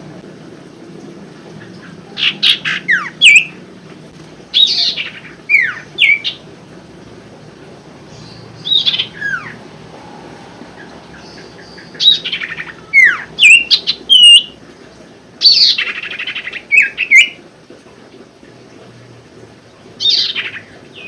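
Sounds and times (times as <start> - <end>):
bird chirps and whistles: 12.0 - 14.5.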